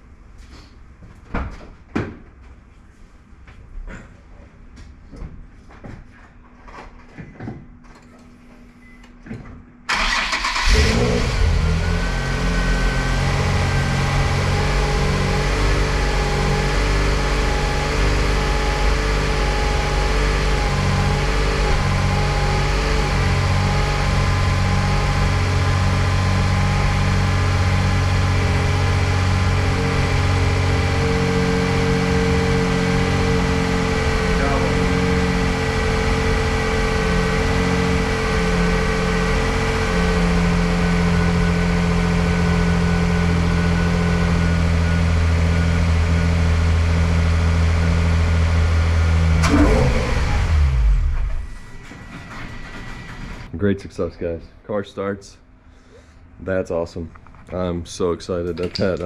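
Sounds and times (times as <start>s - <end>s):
car engine starting and idling: 9.9s - 53.5s.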